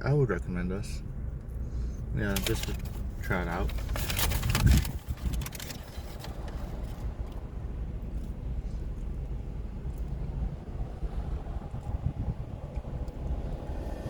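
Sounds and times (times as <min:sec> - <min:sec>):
car rumble from inside: 0:00.0 - 0:14.0.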